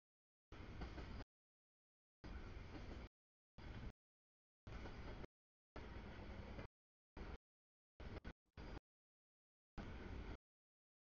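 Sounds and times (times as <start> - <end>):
freight train rolling: 0.5 - 1.2.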